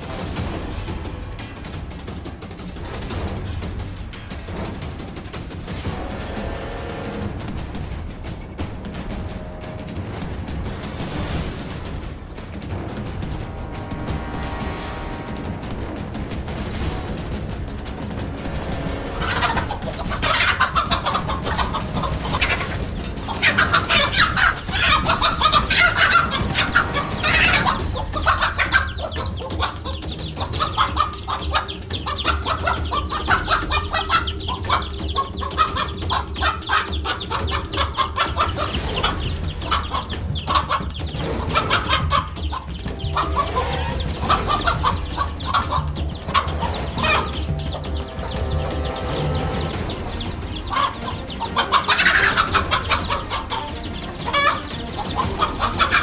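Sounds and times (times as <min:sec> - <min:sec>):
chickens clucking: 0:12.5 - 0:56.0.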